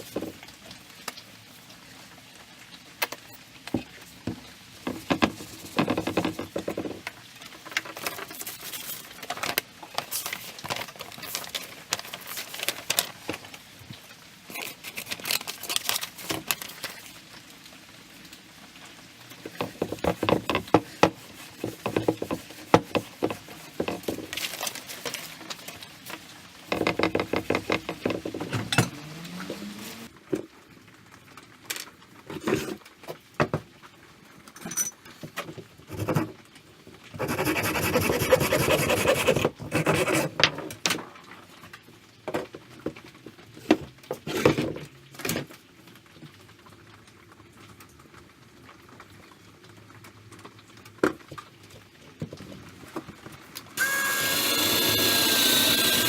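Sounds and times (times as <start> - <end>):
clicks and knocks at a workbench: 3.0 - 7.1, 26.7 - 28.9.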